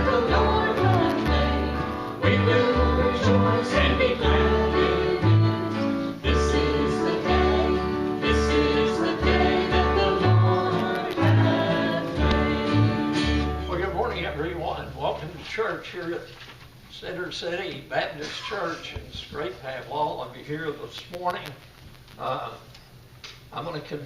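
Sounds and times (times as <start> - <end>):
steady bass line: 0.0 - 5.6
gospel singing with instruments: 0.0 - 14.1.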